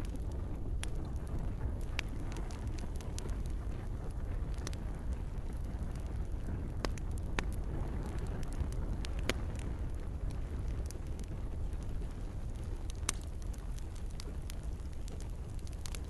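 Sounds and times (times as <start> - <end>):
campfire crackling: 0.0 - 16.0
gentle rain: 0.0 - 16.0.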